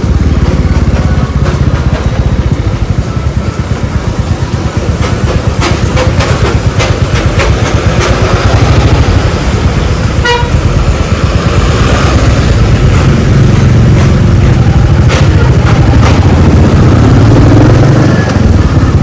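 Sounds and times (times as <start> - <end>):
motorcycle engine running: 0.0 - 19.0
vehicle horn toot: 10.2 - 10.7.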